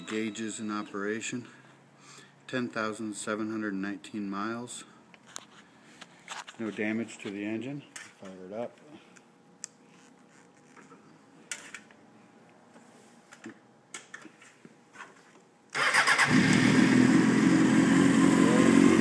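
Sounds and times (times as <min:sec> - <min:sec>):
motorcycle engine starting and running: 0:15.8 - 0:19.0.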